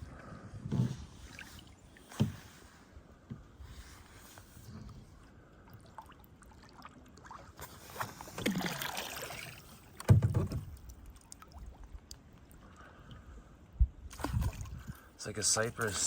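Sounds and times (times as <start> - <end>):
paddle swishing through water: 0.0 - 13.3
water drips: 10.7 - 13.2.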